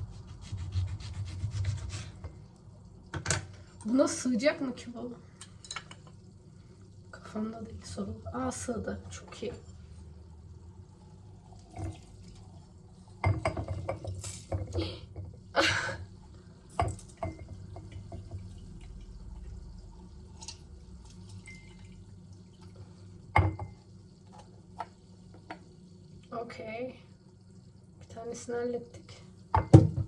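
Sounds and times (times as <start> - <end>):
juice dripping: 2.1 - 30.0.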